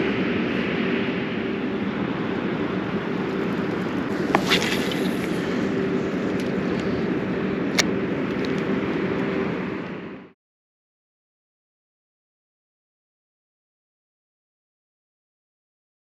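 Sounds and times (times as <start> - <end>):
engine drone: 0.0 - 10.4.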